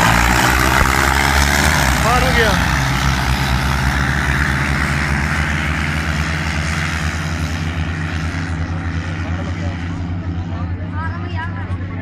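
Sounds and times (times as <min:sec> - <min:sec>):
tractor engine droning: 0:00.0 - 0:12.0.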